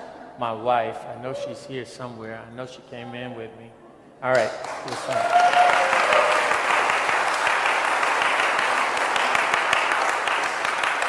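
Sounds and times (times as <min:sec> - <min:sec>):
crowd clapping: 0:04.3 - 0:11.0.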